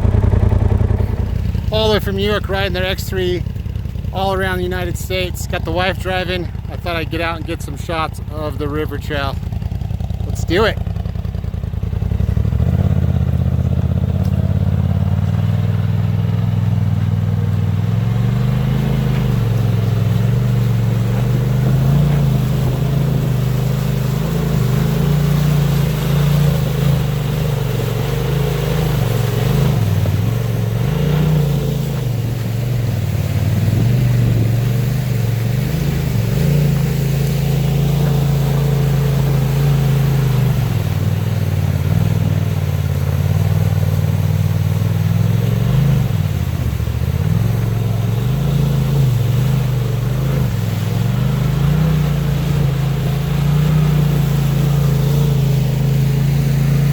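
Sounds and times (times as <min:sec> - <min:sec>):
utility vehicle engine revving: 0:00.0 - 0:56.9.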